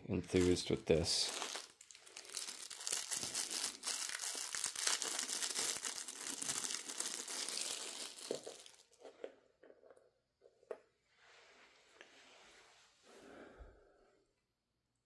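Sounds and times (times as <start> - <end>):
packaging crinkling: 0.2 - 9.0.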